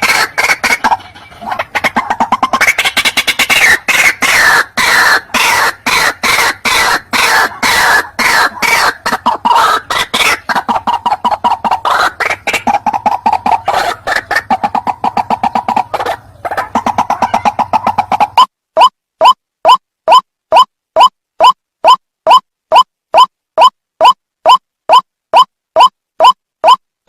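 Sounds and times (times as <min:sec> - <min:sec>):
bird harsh rapid croaking: 0:00.0 - 0:26.8.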